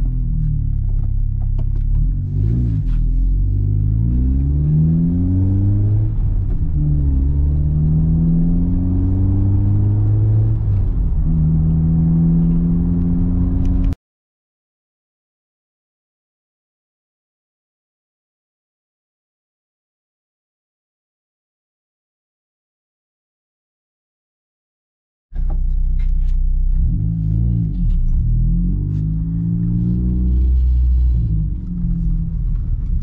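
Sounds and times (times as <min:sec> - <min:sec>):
car engine accelerating through gears: 0:00.0 - 0:14.0, 0:25.4 - 0:33.0.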